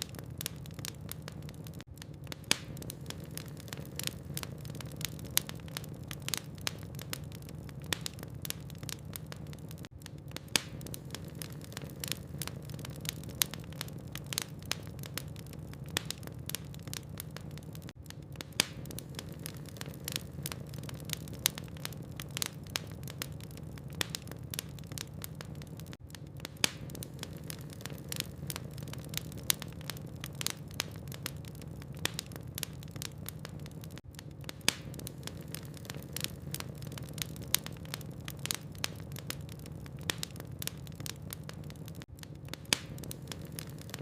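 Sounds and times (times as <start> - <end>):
logs burning and crackling: 0.0 - 44.0.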